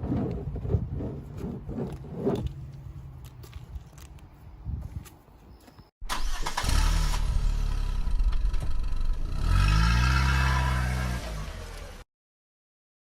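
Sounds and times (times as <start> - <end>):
vehicle engine starting and revving: 6.1 - 12.0.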